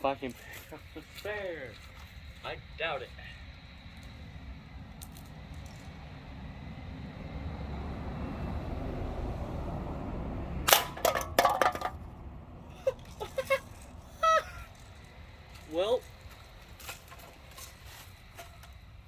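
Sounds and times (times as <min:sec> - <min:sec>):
low rumble: 0:02.6 - 0:12.9
bb gun shot: 0:10.7 - 0:11.6
bb knocking metal cans: 0:10.7 - 0:12.1.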